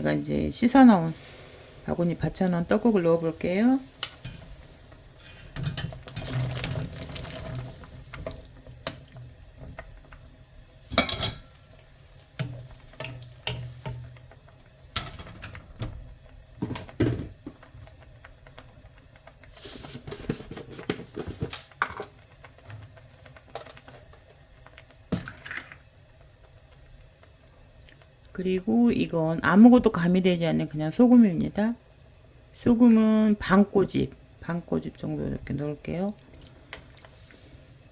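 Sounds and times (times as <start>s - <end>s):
boiling water: 0.0s - 37.9s
utensils knocking against a pot: 10.9s - 11.5s.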